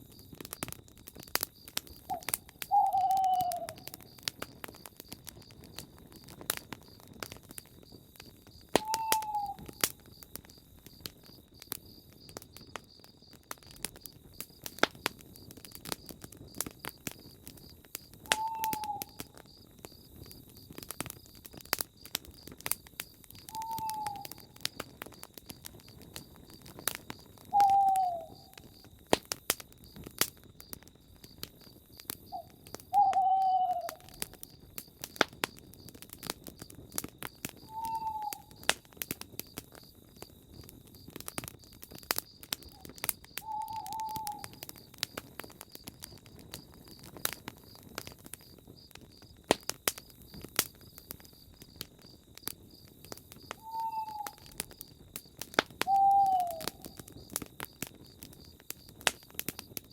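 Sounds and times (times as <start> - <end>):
campfire crackling and popping: 0.0 - 59.9
bird hooting: 2.1 - 3.9, 8.8 - 9.7, 18.3 - 19.1, 23.5 - 24.4, 27.5 - 28.6, 32.3 - 34.2, 37.7 - 38.5, 43.4 - 44.6, 53.6 - 54.5, 55.9 - 56.9.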